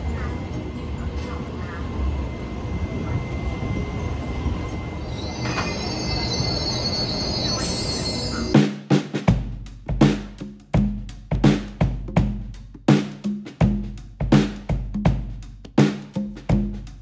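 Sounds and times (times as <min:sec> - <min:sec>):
electric train rumbling on rails: 0:00.0 - 0:08.6
high wheel squeal: 0:00.0 - 0:08.6
music with hard drum beat: 0:08.5 - 0:17.0.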